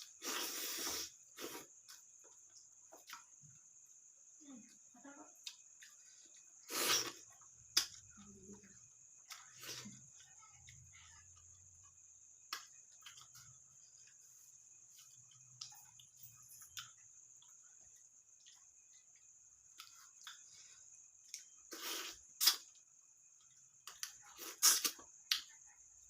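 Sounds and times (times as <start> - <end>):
faint high hiss: 0.0 - 3.2, 3.8 - 8.6, 21.2 - 22.8.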